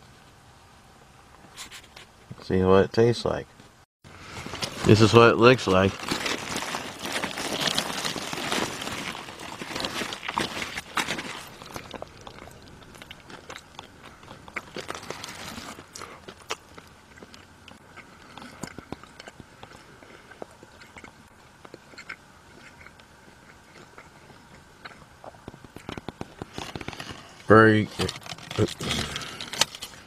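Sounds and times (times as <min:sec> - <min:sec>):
person chewing a burger: 0:04.2 - 0:05.0, 0:05.9 - 0:30.0.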